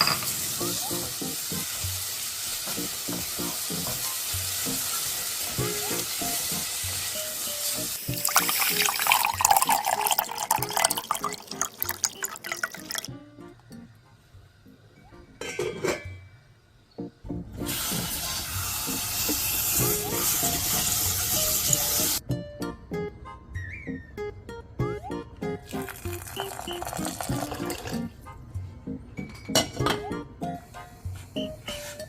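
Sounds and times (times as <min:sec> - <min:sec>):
soft background music: 0:00.0 - 0:32.0
water running and splashing: 0:04.7 - 0:13.1, 0:25.7 - 0:28.0.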